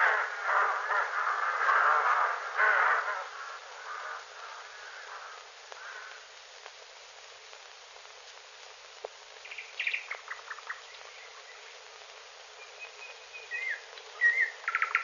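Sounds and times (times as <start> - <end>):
film soundtrack hiss: 0.0 - 15.0
small birds chirping: 9.3 - 15.0
whistled gliding bird notes: 12.6 - 15.0.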